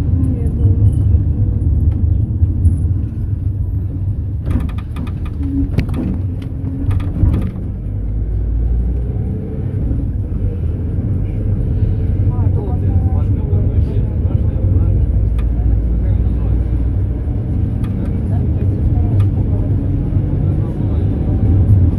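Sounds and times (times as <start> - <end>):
engine and road rumble: 0.0 - 21.9
rattling clicks: 4.4 - 8.0.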